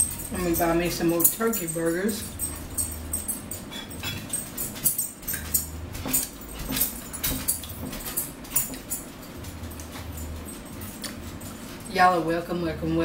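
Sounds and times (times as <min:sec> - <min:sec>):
forks tapping plates: 0:00.0 - 0:12.0
chewing and mouth smacks: 0:07.6 - 0:11.8.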